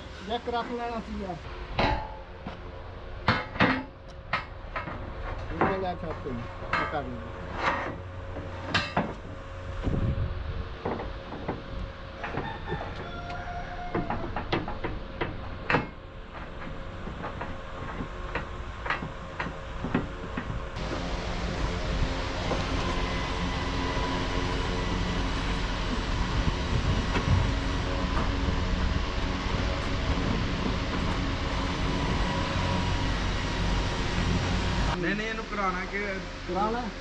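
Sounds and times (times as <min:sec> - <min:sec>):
heavy machinery rumbling: 0:13.7 - 0:37.0
metal knocking and clanking: 0:13.9 - 0:21.8
low rumble: 0:20.4 - 0:37.0.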